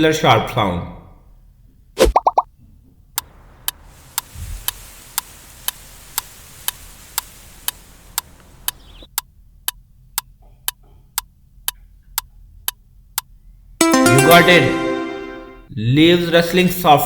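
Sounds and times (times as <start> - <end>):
sharp ticks: 3.2 - 13.3
leaves rustling: 3.3 - 9.0.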